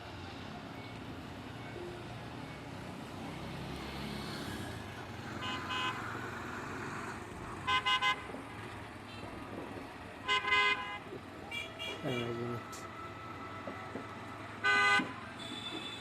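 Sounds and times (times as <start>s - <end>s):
diesel locomotive engine rumbling: 4.6s - 16.0s.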